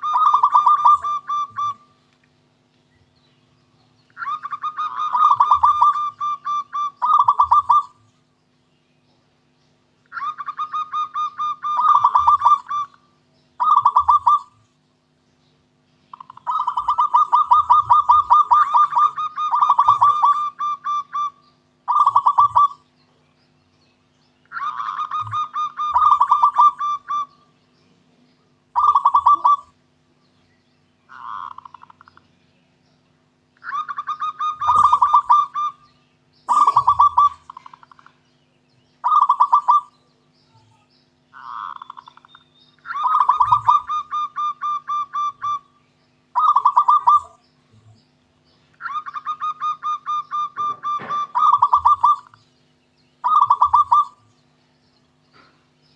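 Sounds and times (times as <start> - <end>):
dove cooing: 0.0 - 2.0, 4.1 - 8.1, 10.1 - 14.7, 16.1 - 22.9, 24.5 - 27.5, 28.7 - 29.9, 31.1 - 32.2, 33.6 - 38.2, 39.0 - 48.0, 48.8 - 52.4, 53.2 - 54.3
faint steady hum: 0.0 - 55.9.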